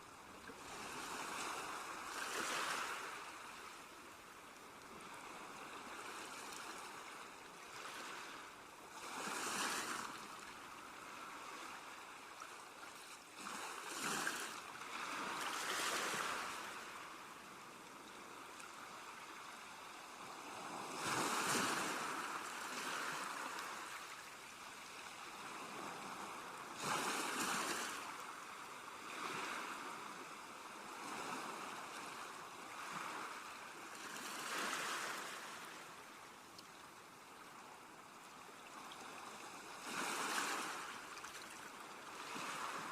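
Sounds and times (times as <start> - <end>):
sea waves washing onto shore: 13.4 - 36.1.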